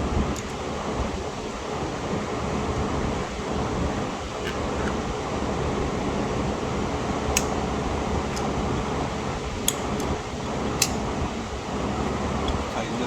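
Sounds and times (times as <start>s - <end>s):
tool clicks: 7.3s - 7.6s, 8.3s - 8.8s, 9.6s - 11.0s.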